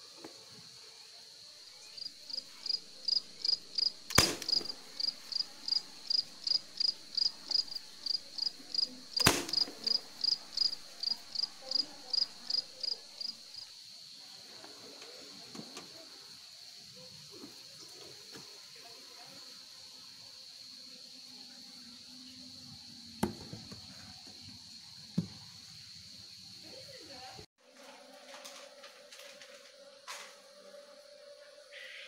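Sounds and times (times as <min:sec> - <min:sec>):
insect chirping: 0:00.6 - 0:14.2, 0:19.4 - 0:27.5, 0:28.9 - 0:32.0.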